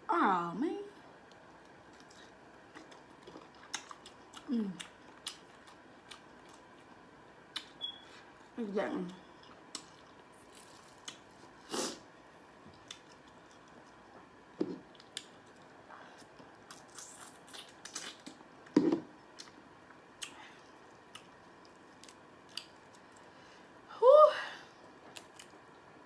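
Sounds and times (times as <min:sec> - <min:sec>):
chewing shrimp: 0:01.2 - 0:07.8, 0:09.1 - 0:12.0, 0:12.7 - 0:14.2, 0:14.8 - 0:18.4, 0:19.3 - 0:23.3, 0:25.0 - 0:25.9.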